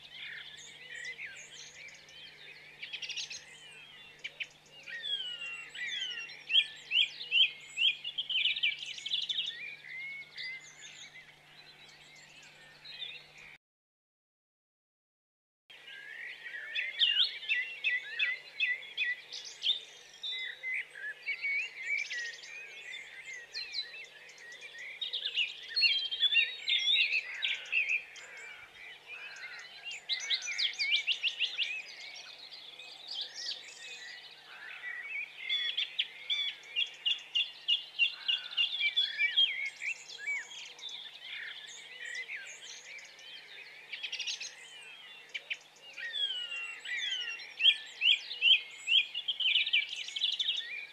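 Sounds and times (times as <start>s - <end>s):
small birds chirping and twittering: 0.0s - 13.6s, 15.7s - 50.9s.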